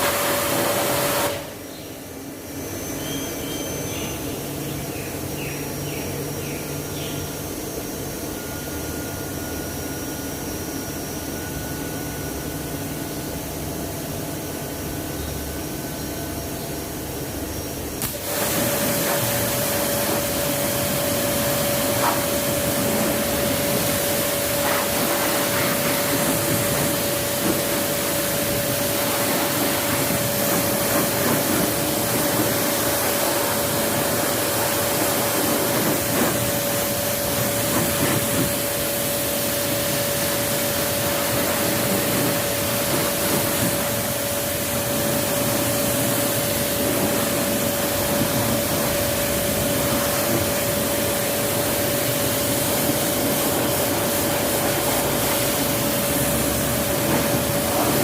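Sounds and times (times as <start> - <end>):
high-pressure spray jet hissing: 0.0 - 1.6, 17.5 - 58.0
steady whine: 0.0 - 58.0.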